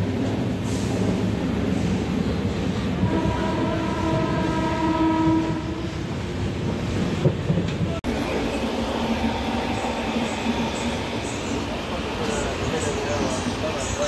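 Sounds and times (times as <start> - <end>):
train running noise: 0.0 - 14.0
train horn: 3.0 - 6.0.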